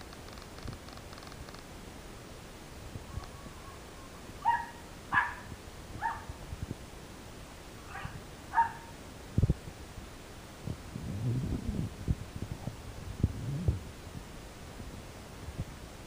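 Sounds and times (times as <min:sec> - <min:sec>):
dog yipping and whining: 0:04.4 - 0:05.4.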